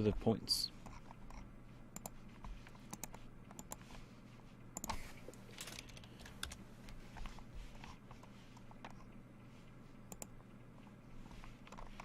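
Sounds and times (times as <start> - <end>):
computer keyboard typing: 2.9 - 3.8, 5.6 - 6.6, 10.1 - 10.3.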